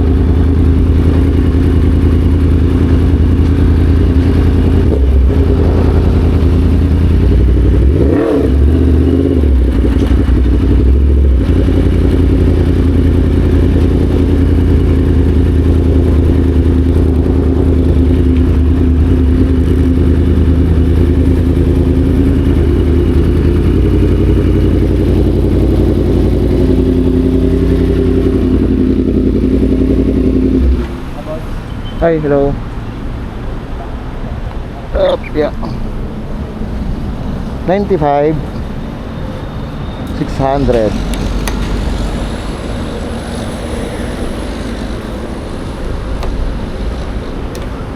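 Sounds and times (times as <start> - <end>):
motorcycle engine running: 0.0 - 31.4.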